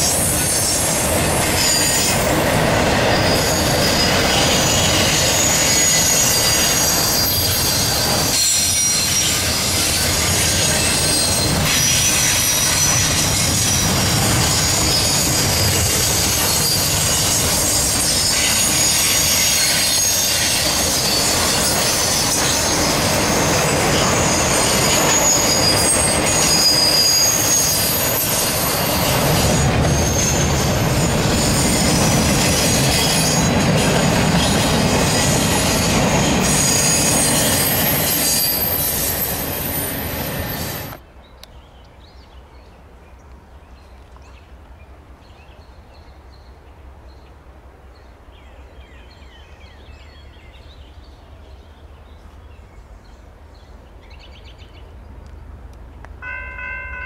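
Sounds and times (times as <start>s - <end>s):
train cars rumbling on rails: 0.0s - 41.0s
wheels squealing against rails: 0.0s - 41.0s.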